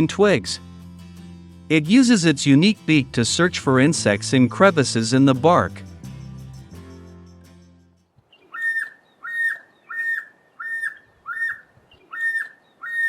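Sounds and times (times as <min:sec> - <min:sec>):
bird whistling notes: 0:04.3 - 0:13.0.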